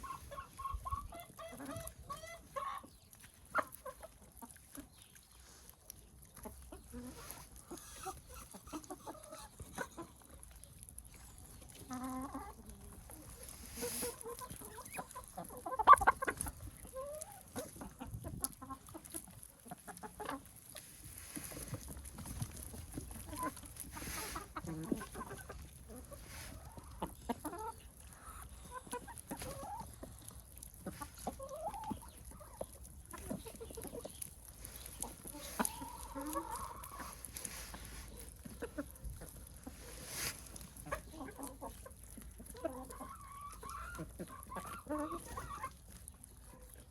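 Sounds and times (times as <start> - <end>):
chicken squawk: 0.0 - 2.8
chickens clucking: 0.0 - 46.9.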